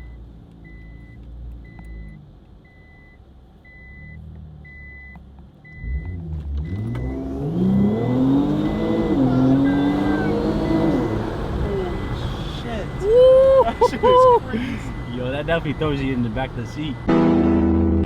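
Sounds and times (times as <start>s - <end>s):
car warning chime beeping: 0.0s - 17.1s
car engine accelerating through gears: 3.8s - 13.6s.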